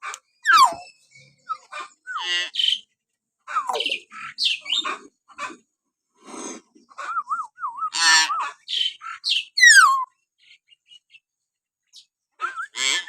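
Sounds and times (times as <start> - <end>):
myna bird calling: 0.0 - 2.8, 3.5 - 5.6, 6.9 - 10.1.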